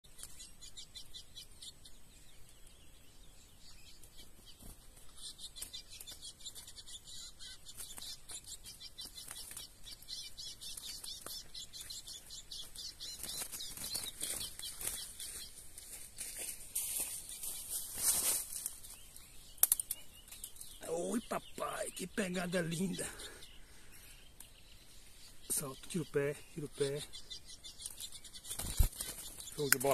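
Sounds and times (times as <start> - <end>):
small birds chirping: 0.0 - 29.9
bird wings flapping against cage: 28.5 - 29.3.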